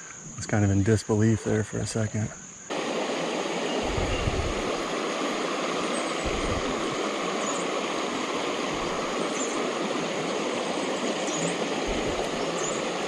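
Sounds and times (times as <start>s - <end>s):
creek water flowing: 2.7s - 13.0s
low bumps: 6.2s - 7.0s.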